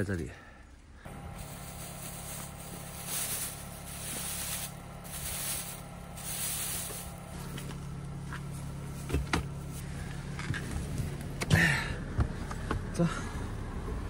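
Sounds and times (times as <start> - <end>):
vehicle engine humming: 0.7 - 14.0
whooshes of passing traffic: 1.1 - 8.2.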